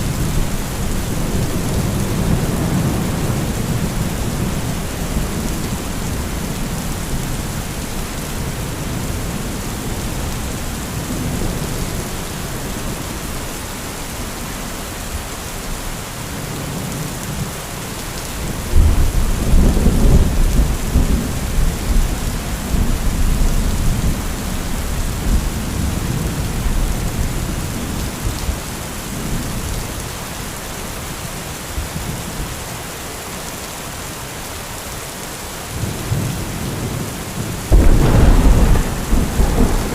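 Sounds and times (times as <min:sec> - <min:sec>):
thunder rumbling: 0:00.0 - 0:07.8, 0:36.1 - 0:39.9
heavy rain falling: 0:00.0 - 0:39.9
loud thunder clap: 0:37.7 - 0:39.9.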